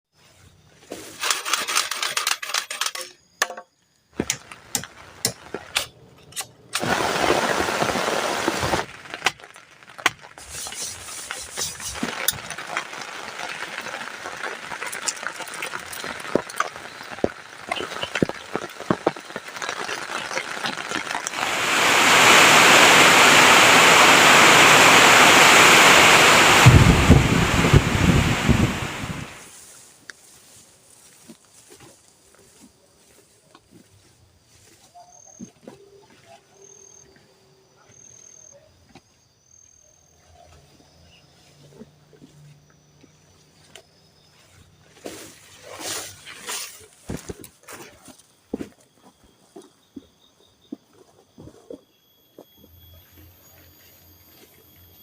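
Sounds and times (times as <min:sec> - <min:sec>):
sharp clicks and ticks: 0:01.2 - 0:06.9, 0:08.9 - 0:21.4
heavy rain hiss: 0:06.7 - 0:31.2.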